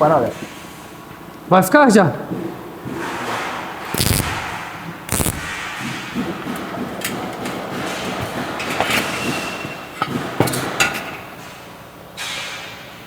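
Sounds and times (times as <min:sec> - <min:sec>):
steady hiss: 0:03.9 - 0:05.8.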